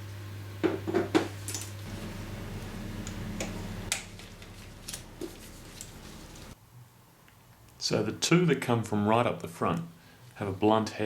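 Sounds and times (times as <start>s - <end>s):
low steady hum: 1.6s - 6.6s.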